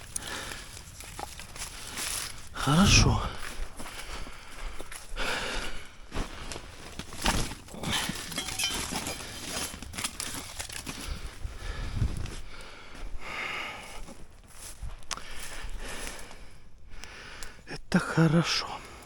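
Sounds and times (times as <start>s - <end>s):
rustling and crinkling: 0.0s - 2.6s, 6.1s - 12.6s.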